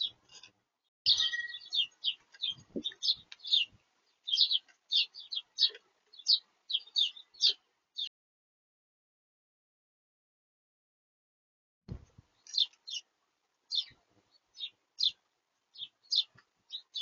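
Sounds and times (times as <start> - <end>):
small birds chirping: 0.0 - 0.5, 1.1 - 8.1, 11.9 - 17.0.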